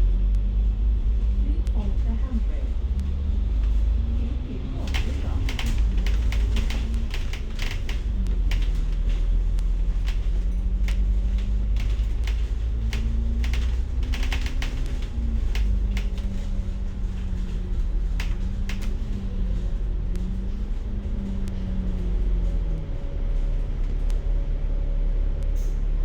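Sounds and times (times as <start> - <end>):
bus engine drone: 0.0 - 26.0
sharp clicks and rattles: 0.3 - 24.2.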